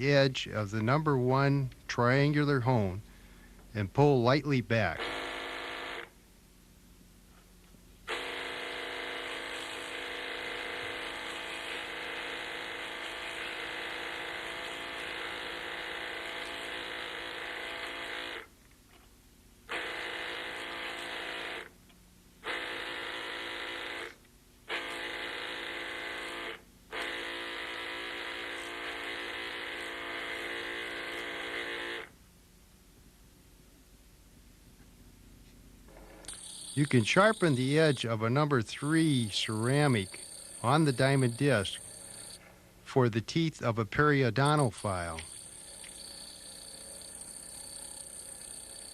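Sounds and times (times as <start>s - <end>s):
small electric motor whine: 5.0s - 6.2s, 8.1s - 18.5s, 19.7s - 21.8s, 22.4s - 32.2s, 35.9s - 38.1s, 39.0s - 42.4s, 44.4s - 48.9s.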